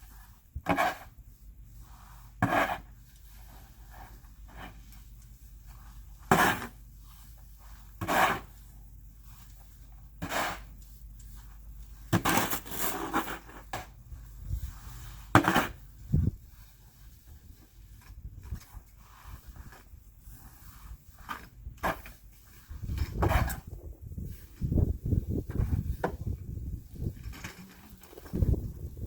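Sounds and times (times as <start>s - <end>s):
snow shovel scraping: 0.0s - 1.2s, 1.9s - 4.9s, 5.7s - 8.6s, 10.2s - 10.8s, 12.0s - 24.8s.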